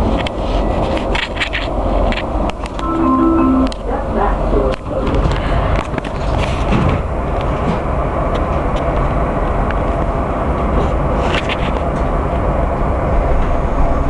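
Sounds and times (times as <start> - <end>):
underground train rumble: 0.0 - 14.0.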